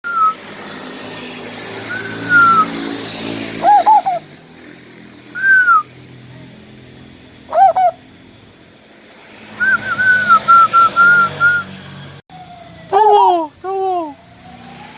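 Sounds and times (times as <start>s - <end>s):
bird whistled notes: 0.0s - 0.6s, 1.8s - 2.9s, 3.6s - 4.3s, 5.3s - 8.4s, 9.4s - 14.9s.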